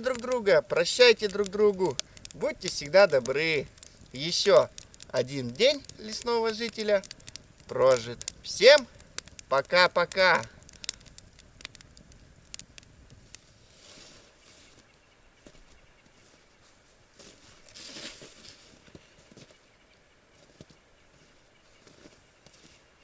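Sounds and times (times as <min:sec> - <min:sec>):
small crackles and clicks: 0:00.0 - 0:14.9
rustling: 0:00.0 - 0:19.6.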